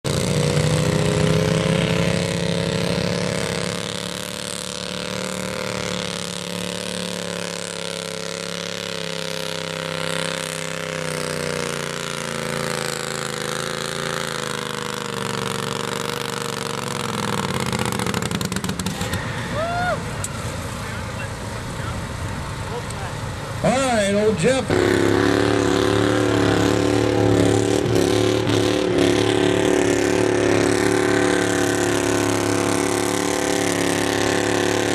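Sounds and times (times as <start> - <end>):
garden tractor engine under load: 2.8 - 19.6.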